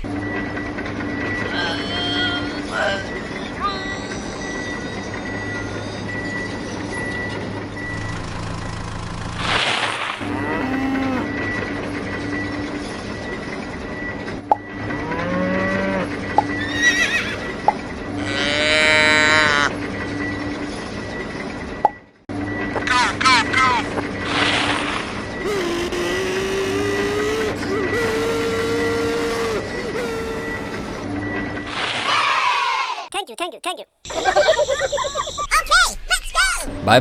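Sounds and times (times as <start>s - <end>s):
cows mooing: 10.2s - 11.4s, 14.9s - 17.6s, 18.2s - 19.7s, 25.4s - 31.0s.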